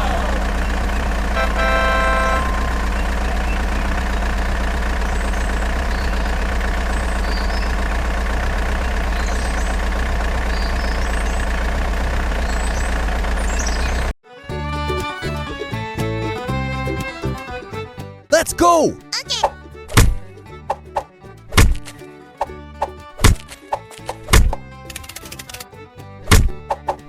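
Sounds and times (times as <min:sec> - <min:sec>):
truck engine idling: 0:00.0 - 0:18.4, 0:19.2 - 0:26.9
short pitched tone: 0:01.4 - 0:03.9.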